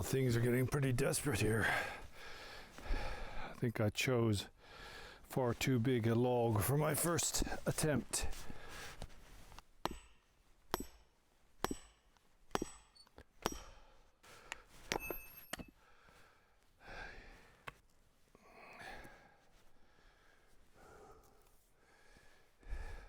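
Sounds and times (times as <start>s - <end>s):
heavy breathing and sighs: 1.6s - 3.6s, 4.6s - 5.3s, 15.7s - 17.7s, 18.3s - 23.0s
hammer knocking steel froe into wood: 9.8s - 11.0s, 11.6s - 13.7s.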